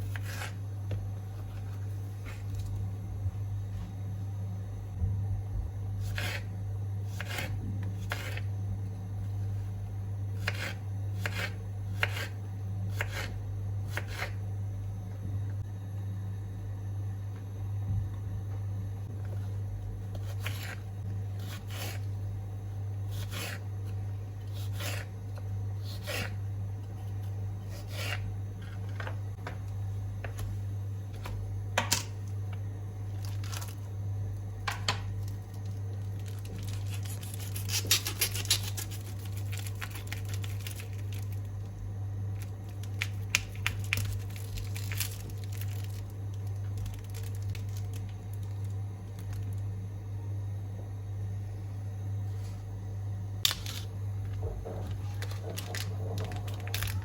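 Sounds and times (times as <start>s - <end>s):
steady low hum: 0.0s - 57.0s
crinkly packaging tearing: 33.2s - 33.8s, 35.2s - 41.5s, 42.4s - 49.6s, 55.1s - 57.0s.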